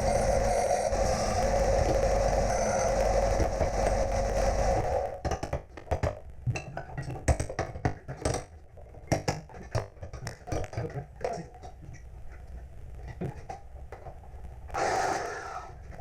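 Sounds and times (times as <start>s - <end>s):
power tool running: 0.0s - 5.1s.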